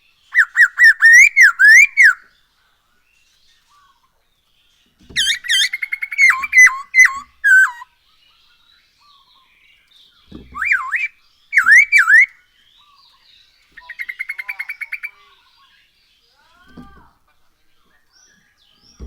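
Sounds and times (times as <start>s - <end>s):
rapid bird chirps: 0.0s - 19.0s
bird singing loud whistles: 0.3s - 2.3s, 5.1s - 7.9s, 10.4s - 12.3s.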